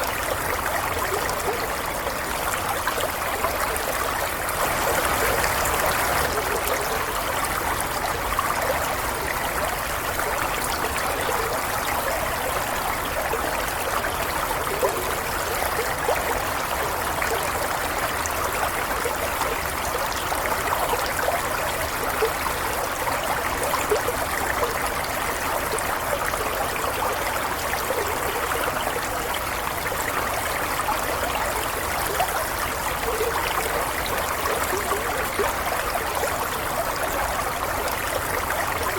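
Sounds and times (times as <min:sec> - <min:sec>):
stream of water trickling: 0:00.0 - 0:38.9.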